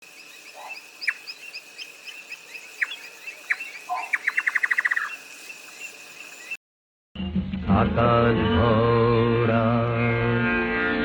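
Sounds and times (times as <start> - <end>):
birds chirping: 0.0 - 6.6.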